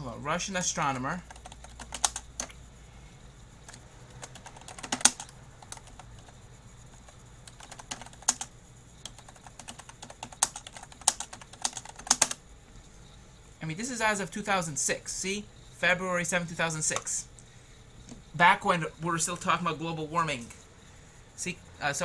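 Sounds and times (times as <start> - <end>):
computer keyboard typing: 0.6 - 2.6, 3.6 - 12.4.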